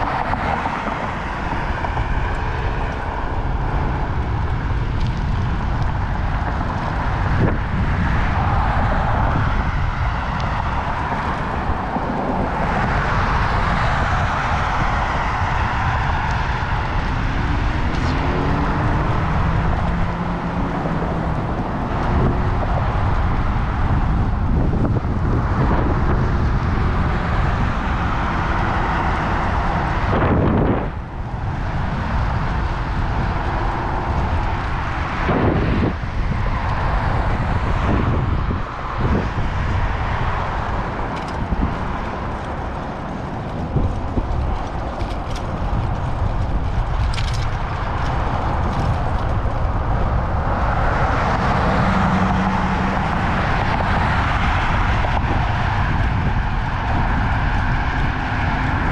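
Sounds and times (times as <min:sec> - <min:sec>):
road and traffic noise: 0:00.0 - 0:58.9
wind rushing over microphone: 0:00.0 - 0:58.9.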